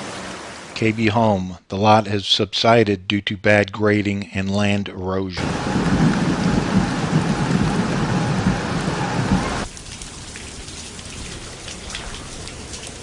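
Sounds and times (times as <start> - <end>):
light rain: 0.0 - 0.9, 5.4 - 13.0
heavy rain splashing: 0.0 - 1.1, 5.4 - 13.0
water drips: 5.9 - 13.0.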